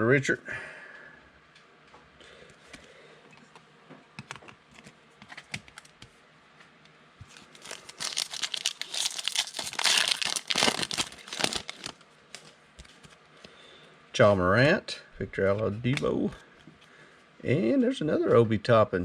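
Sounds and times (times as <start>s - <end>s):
card pack wrapper tearing and crinkling: 7.3s - 12.5s.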